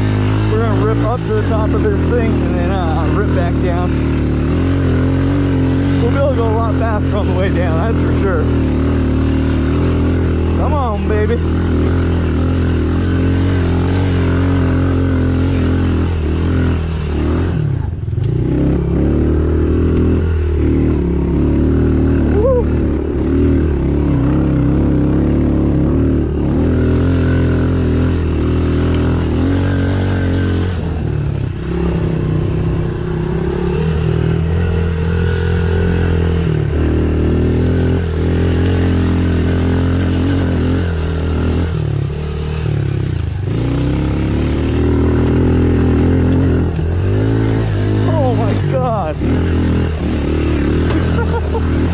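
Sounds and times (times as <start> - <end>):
trail bike engine under load: 0.0 - 51.9.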